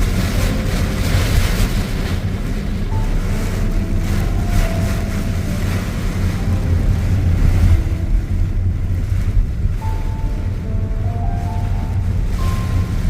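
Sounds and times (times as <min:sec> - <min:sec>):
car engine and road rumble: 0:00.0 - 0:13.0
heavy rain hissing: 0:00.0 - 0:13.0.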